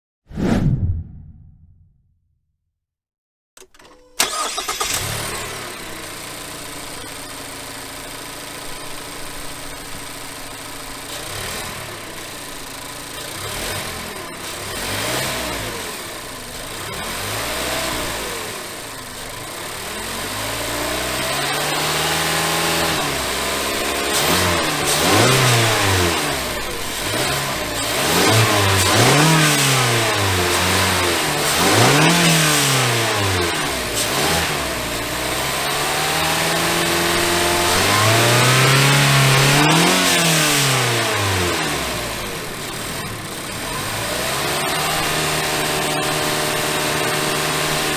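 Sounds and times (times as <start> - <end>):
car engine revving: 24.1 - 47.8.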